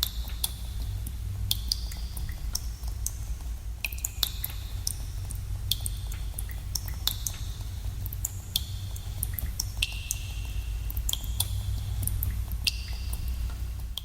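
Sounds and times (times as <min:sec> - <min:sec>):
low rumble: 0:00.0 - 0:14.0
water drops plinking in a cave: 0:00.0 - 0:14.0.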